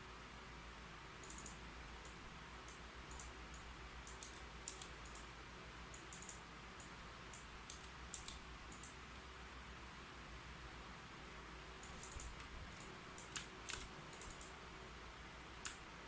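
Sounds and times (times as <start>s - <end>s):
faint steady hiss: 0.0s - 16.0s
keyboard keystrokes: 1.2s - 1.6s, 4.1s - 5.2s, 6.0s - 6.4s, 7.4s - 9.0s, 11.8s - 14.5s.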